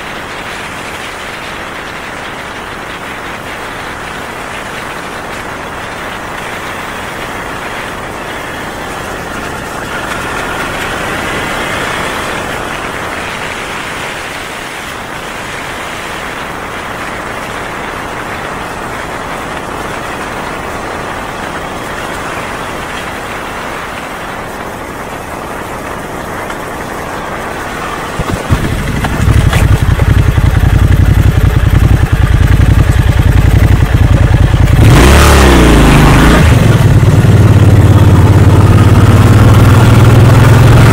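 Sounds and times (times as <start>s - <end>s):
motorcycle engine rumbling: 0.0s - 40.9s
steady background noise: 0.0s - 40.9s.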